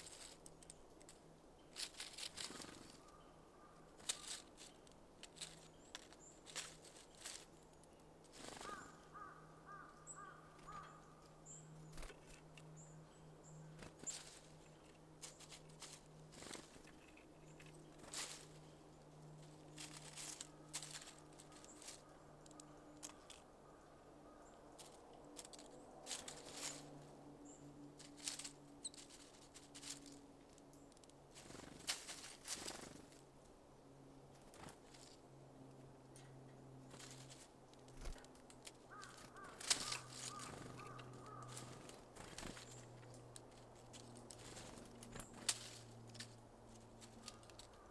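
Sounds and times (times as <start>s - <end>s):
bird wings fluttering: 1.8s - 3.2s, 4.0s - 7.5s, 8.3s - 9.0s, 11.8s - 12.5s, 13.7s - 18.7s, 19.4s - 23.4s, 24.8s - 27.0s, 31.3s - 33.2s, 34.4s - 35.2s, 36.9s - 43.2s, 43.8s - 47.9s
beaks tapping on seeds: 4.0s - 8.9s, 37.0s - 46.3s.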